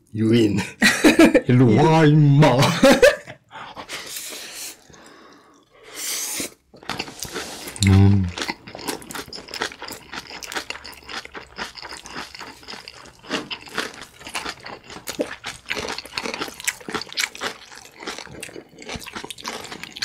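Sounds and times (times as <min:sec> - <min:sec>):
crunchy chewing and biting: 0:06.9 - 0:20.0.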